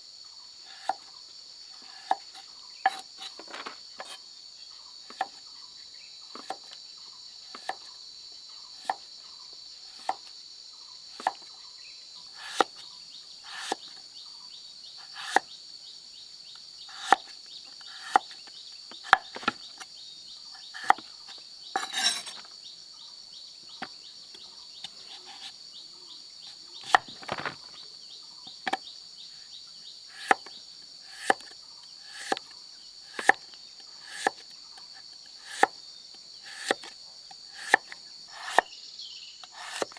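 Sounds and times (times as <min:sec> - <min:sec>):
insect chorus: 0:00.0 - 0:39.9
sharp knocks from hand work: 0:21.8 - 0:22.5.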